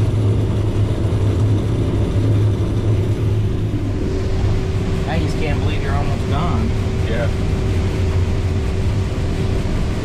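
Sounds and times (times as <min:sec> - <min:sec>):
combine harvester engine hum: 0:00.0 - 0:10.0
steady high machinery tone: 0:00.0 - 0:10.0.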